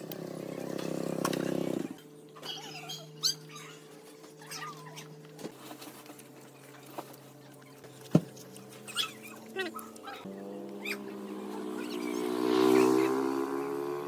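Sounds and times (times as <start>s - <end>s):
small animals squeaking and chirping: 1.8s - 5.2s, 6.6s - 13.2s.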